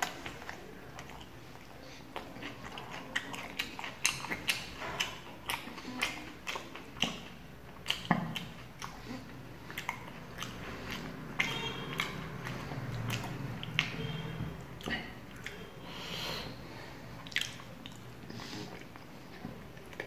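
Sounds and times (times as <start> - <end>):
mouth clicks and lip smacks: 0.0 - 14.0, 17.2 - 18.1
wet chewing: 0.0 - 15.7, 17.1 - 20.0.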